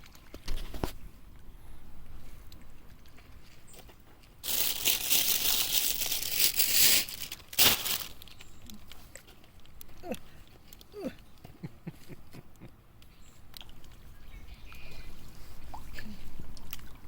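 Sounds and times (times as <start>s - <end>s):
crinkling rustling: 2.9s - 10.9s.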